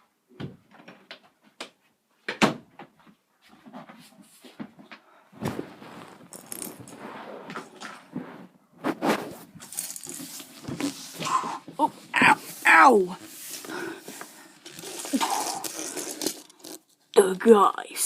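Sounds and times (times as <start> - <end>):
rustling clatter: 5.4 - 8.4, 9.1 - 12.6, 13.2 - 16.9
small objects clicking and knocking: 6.3 - 7.0, 9.6 - 11.4, 14.2 - 17.0.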